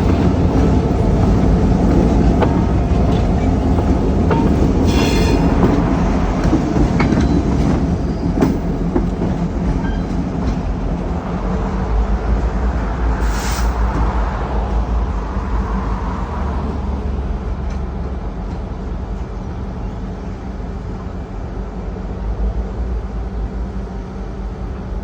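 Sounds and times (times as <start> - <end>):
wheels clicking on rail joints: 0.0 - 11.1
freight train rumbling past: 0.0 - 25.0
high-pitched wheel squeal: 4.8 - 5.5.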